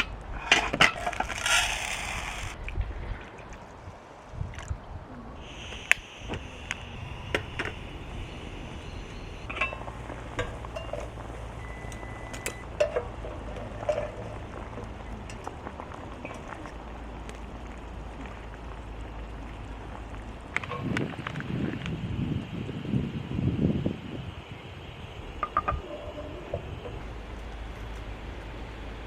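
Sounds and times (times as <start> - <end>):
cookware clinking and tapping: 9.5 - 11.3.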